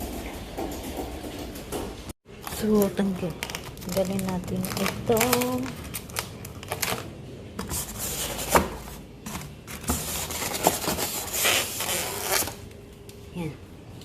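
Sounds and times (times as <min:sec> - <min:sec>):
packaging rustling and tearing: 0:02.4 - 0:12.6.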